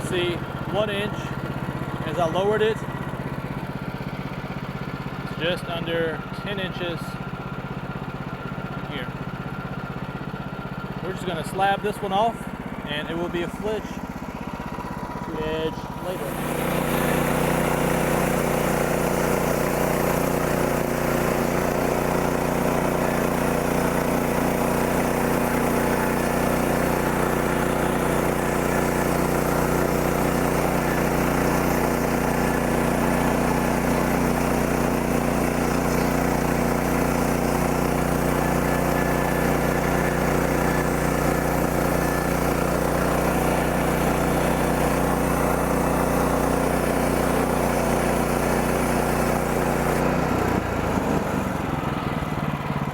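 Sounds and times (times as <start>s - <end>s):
sawmill gas engine running: 0.0s - 52.9s
band blade cutting log: 15.8s - 51.7s.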